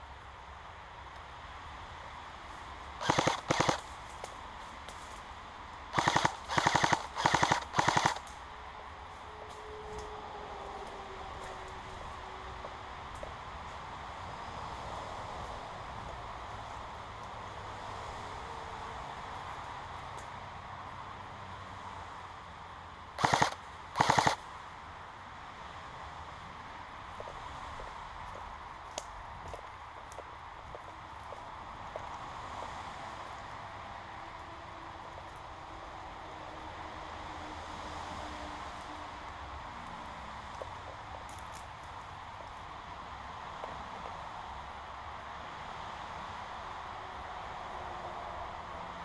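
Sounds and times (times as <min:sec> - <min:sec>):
airsoft gun rapid-fire bursts: 0:03.0 - 0:03.8, 0:05.9 - 0:08.3, 0:23.2 - 0:24.4.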